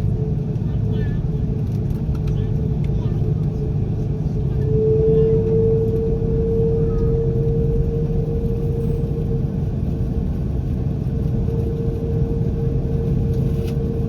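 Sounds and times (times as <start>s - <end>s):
airliner cabin engine rumble: 0.0s - 14.0s
jet engine whine: 0.0s - 14.0s.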